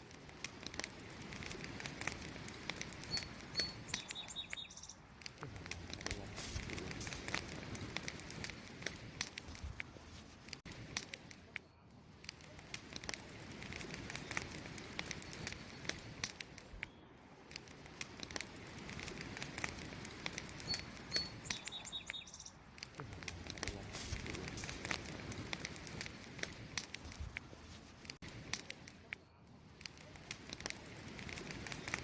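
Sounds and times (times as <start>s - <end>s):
campfire crackling and popping: 0.0s - 32.0s
high bird chirps: 3.0s - 5.1s, 20.6s - 22.6s.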